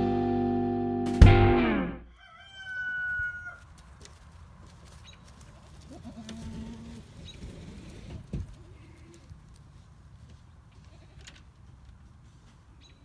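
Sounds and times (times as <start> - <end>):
farm animals calling: 0.0 - 3.8, 4.9 - 9.2.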